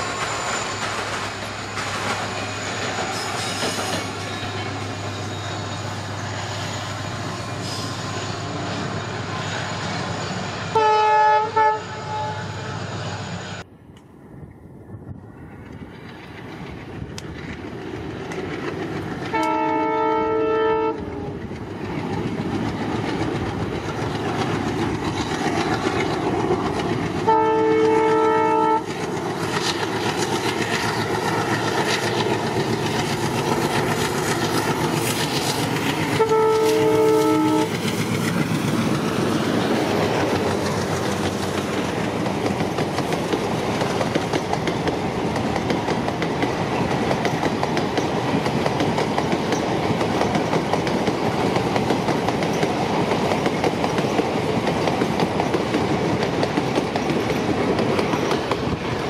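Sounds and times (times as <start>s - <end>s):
wheels clacking on rails: 0.0s - 10.7s, 15.3s - 59.0s
train rumble: 0.0s - 59.0s
locomotive horn blasts: 10.7s - 12.6s, 19.3s - 21.3s, 27.3s - 28.9s, 36.1s - 37.8s.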